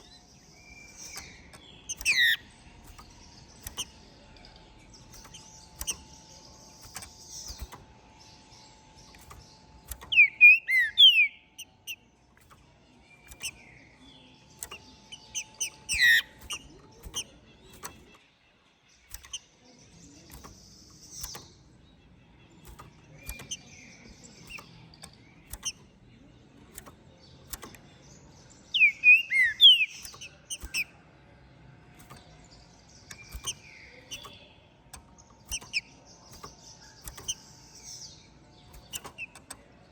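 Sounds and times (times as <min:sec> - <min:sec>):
soft bird chips and clicks: 0:00.0 - 0:39.9
bird singing gliding whistles: 0:09.2 - 0:12.0, 0:28.7 - 0:30.9.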